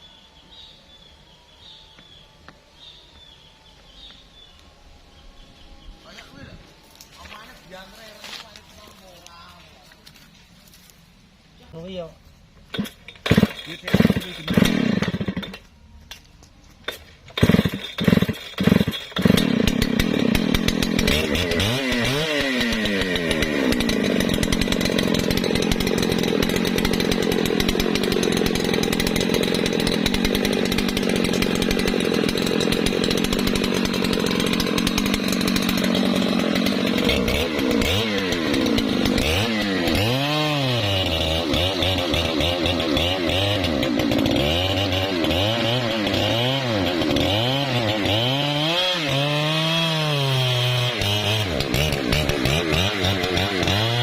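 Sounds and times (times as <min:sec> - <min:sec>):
chainsaw engine revving: 0:12.7 - 0:15.7, 0:16.9 - 0:54.0.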